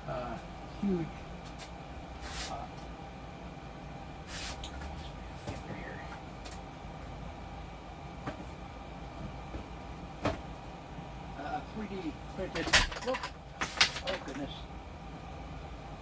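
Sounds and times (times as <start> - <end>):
steady low hum: 0.0 - 16.0
objects rustling and knocking: 12.6 - 14.5.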